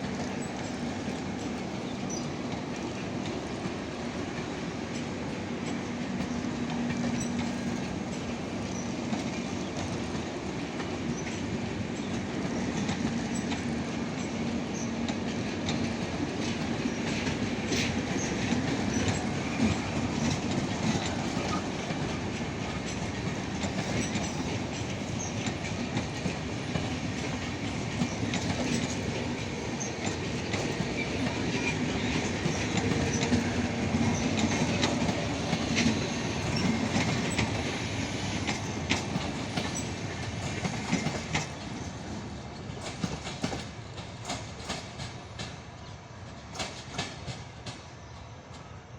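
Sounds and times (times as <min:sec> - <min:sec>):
wheels clacking over rail joints: 0:00.0 - 0:48.8
train rumbling: 0:00.0 - 0:48.9.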